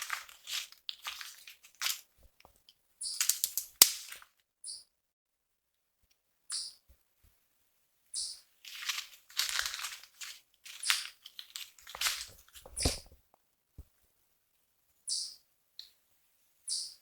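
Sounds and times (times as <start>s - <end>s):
rustling and crunching: 0.0s - 4.3s, 8.6s - 13.2s.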